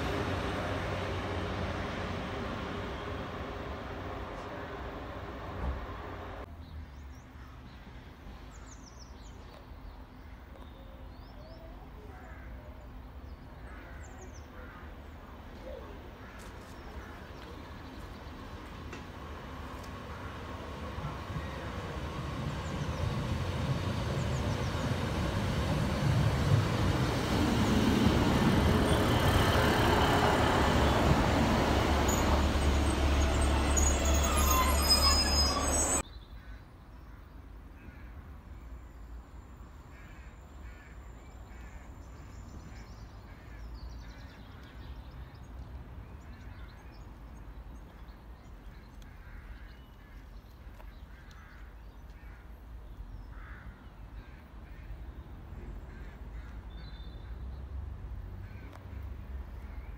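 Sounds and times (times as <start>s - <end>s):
train running into station: 0.0s - 6.5s, 15.4s - 36.0s
high squeal: 30.7s - 36.0s.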